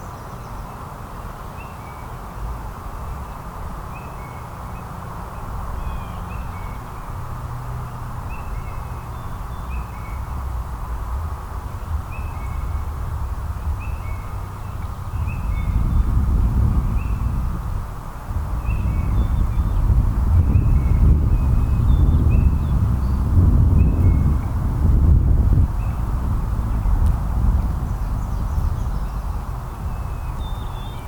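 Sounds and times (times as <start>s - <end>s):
steady low rumble: 9.6s - 31.0s.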